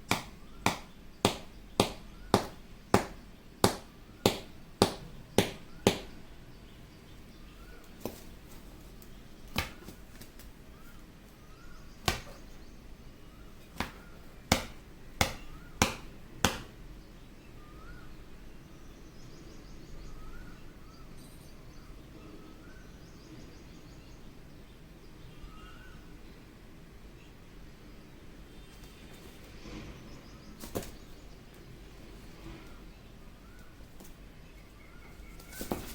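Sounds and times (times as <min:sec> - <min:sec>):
parrot beak tapping on mirror: 0:00.1 - 0:06.1, 0:13.8 - 0:16.7.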